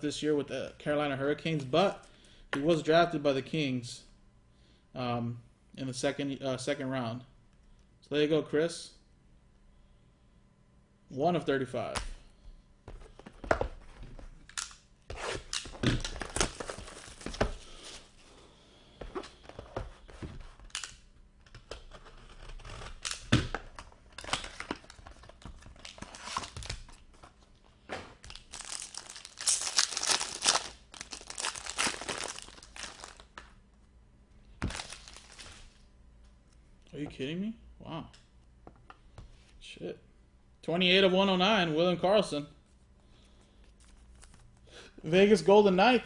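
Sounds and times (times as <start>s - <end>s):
foil wrappers ripping and crinkling: 28.2s - 33.4s, 34.6s - 35.8s.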